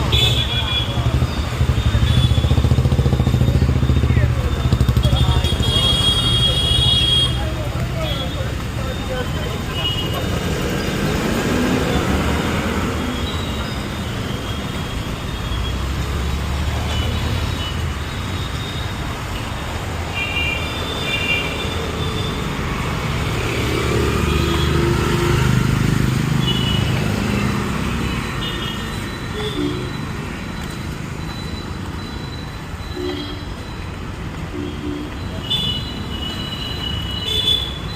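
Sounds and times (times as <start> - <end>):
road traffic rumble: 0.0 - 37.9.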